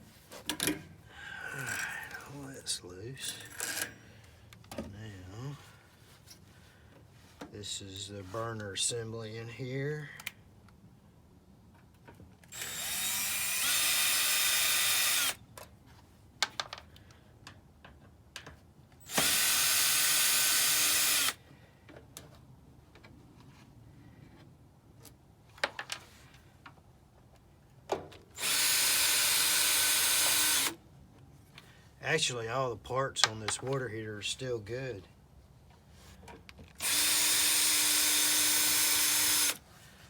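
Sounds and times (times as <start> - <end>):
power drill running: 12.5 - 15.4, 19.0 - 21.4, 28.4 - 30.8, 36.8 - 39.6.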